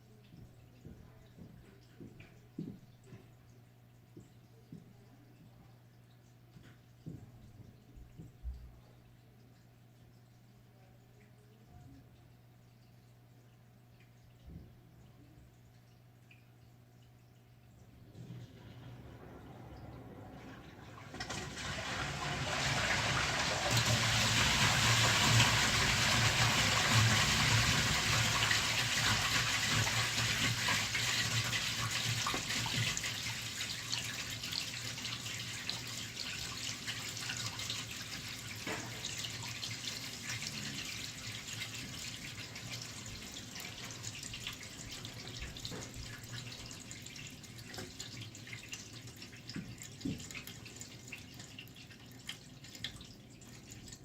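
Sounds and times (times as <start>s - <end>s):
running water: 0.0s - 54.0s
toilet flushing: 17.9s - 54.0s.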